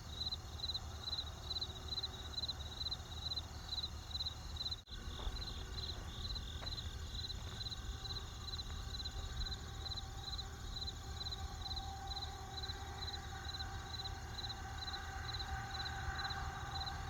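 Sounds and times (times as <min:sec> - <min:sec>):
campfire rumble and crackles: 0:00.0 - 0:17.0
crickets chirping: 0:00.0 - 0:17.0.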